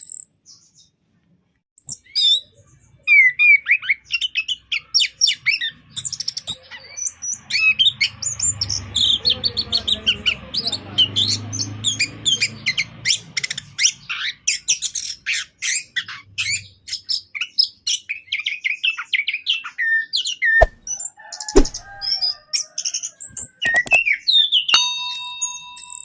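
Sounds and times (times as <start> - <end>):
sharp clicks: 23.7 - 24.0
steady ringing tones: 24.8 - 26.0.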